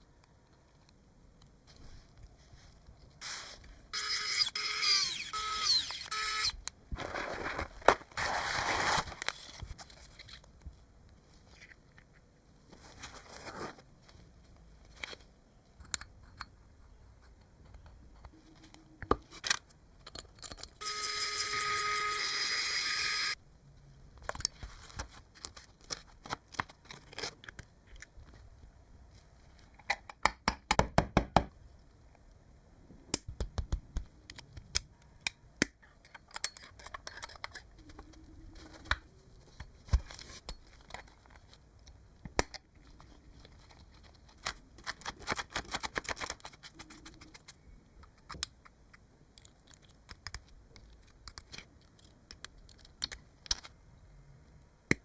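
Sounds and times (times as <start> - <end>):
clicks and taps of small parts: 48.0 - 53.7.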